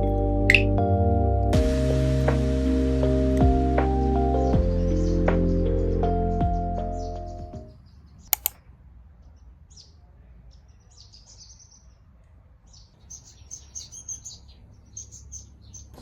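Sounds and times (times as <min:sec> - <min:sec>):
small birds chirping: 0:00.5 - 0:00.7, 0:04.7 - 0:08.6, 0:09.2 - 0:12.0, 0:12.7 - 0:16.0
sharp clicks: 0:08.4 - 0:08.6.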